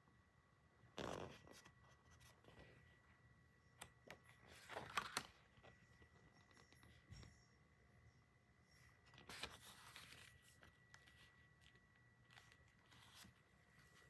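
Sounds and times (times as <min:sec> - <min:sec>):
paper and plastic rustling: 0:04.2 - 0:07.1, 0:09.0 - 0:14.0.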